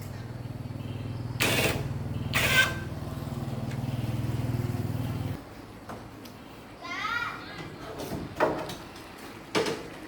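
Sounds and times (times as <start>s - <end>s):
engine running steadily: 0.0s - 5.5s.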